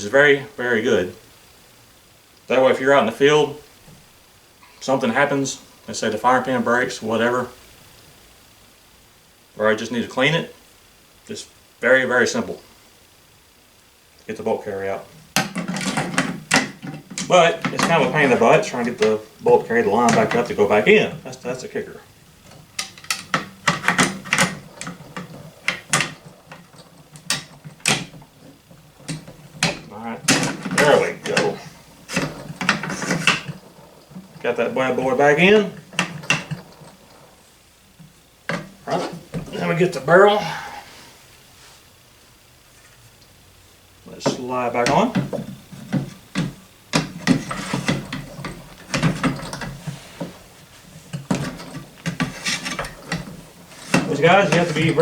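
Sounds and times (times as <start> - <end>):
steel rifle parts knocking and scraping: 15.3 - 21.1, 22.4 - 37.3, 44.3 - 55.0.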